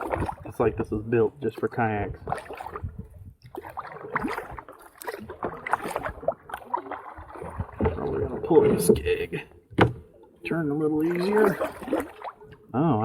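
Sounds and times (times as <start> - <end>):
paddle strokes splashing water: 0.0 - 12.7
small knocks: 9.7 - 10.1.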